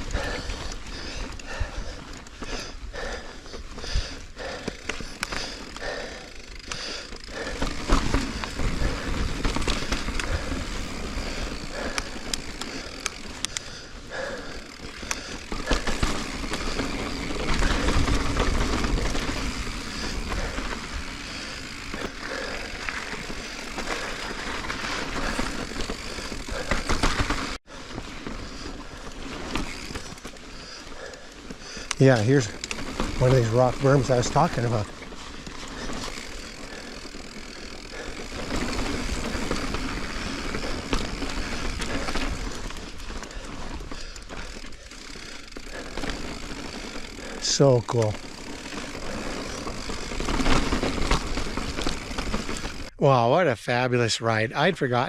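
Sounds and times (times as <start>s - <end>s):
bike rattling and clicking: 0.0s - 53.0s
bike tyres rolling on rock: 0.0s - 53.0s.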